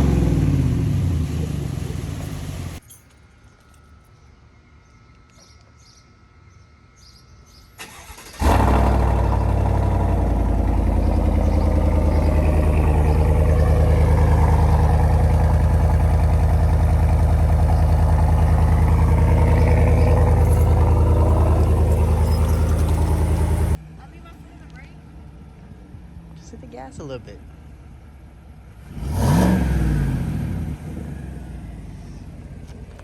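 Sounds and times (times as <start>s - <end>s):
pickup engine starting and idling: 0.0s - 2.8s, 7.8s - 23.8s.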